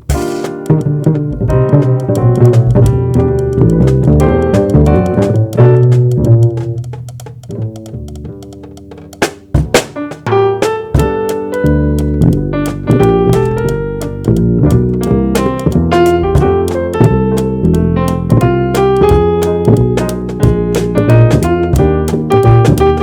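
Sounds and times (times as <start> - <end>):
sharp drum hits: 0.0 - 0.7, 8.9 - 11.4
bass: 0.0 - 23.0
drum kit: 0.0 - 23.0
keyboard chords: 0.0 - 23.0.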